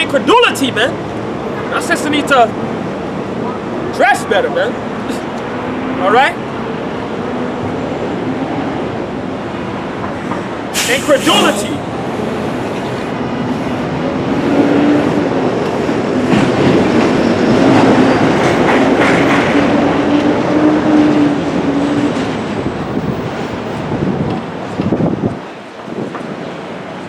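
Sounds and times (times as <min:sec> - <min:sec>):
train passing: 0:04.8 - 0:23.6.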